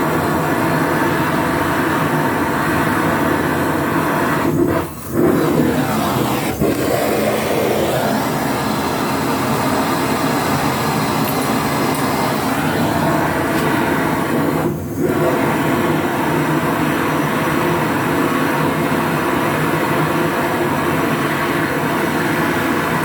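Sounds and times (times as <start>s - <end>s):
machine running: 0.0s - 17.4s.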